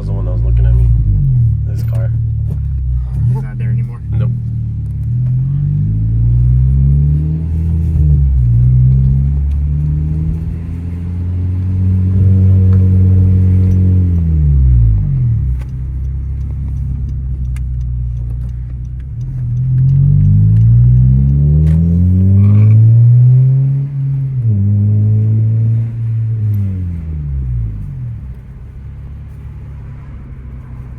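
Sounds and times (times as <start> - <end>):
car engine revving while driving: 0.0 - 30.9.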